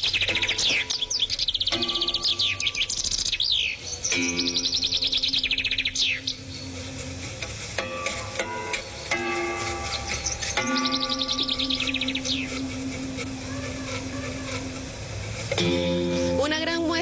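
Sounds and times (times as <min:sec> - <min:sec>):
bird trilling and chirping: 0:00.0 - 0:16.3
steady low tones: 0:03.9 - 0:17.0.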